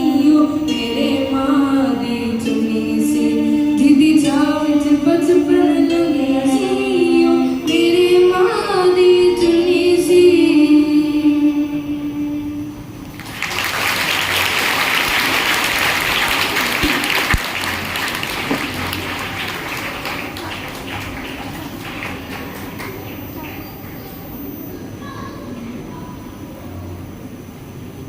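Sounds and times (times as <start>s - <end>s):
person singing: 0.0s - 12.7s
audience applauding: 13.1s - 24.7s.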